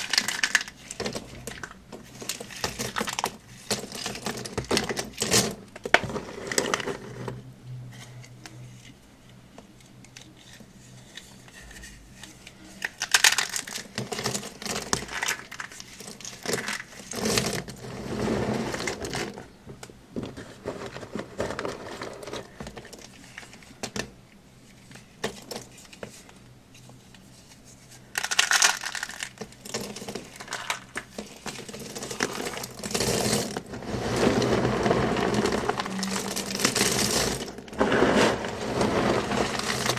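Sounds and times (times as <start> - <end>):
dry material crunching by hand: 31.8 - 39.9.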